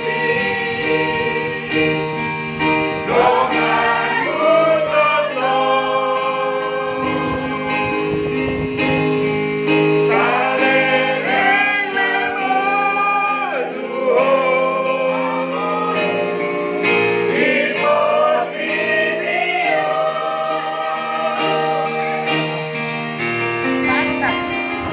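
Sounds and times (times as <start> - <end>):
choir singing a hymn: 0.0 - 23.3
held accompaniment chords: 0.0 - 24.9.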